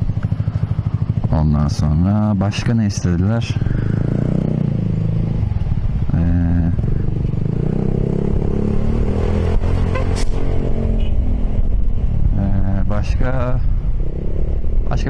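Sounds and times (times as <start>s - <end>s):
scooter engine running: 0.0s - 1.4s.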